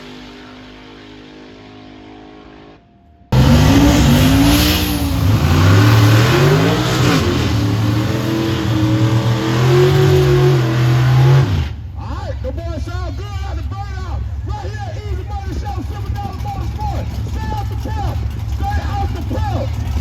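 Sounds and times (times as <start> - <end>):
car engine revving: 3.3 - 11.9, 15.1 - 20.0.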